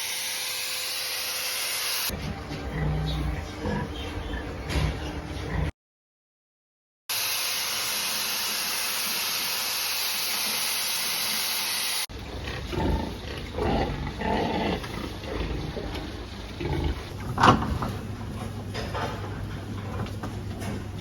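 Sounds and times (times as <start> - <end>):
pigs grunting: 2.1 - 5.7, 12.1 - 20.0.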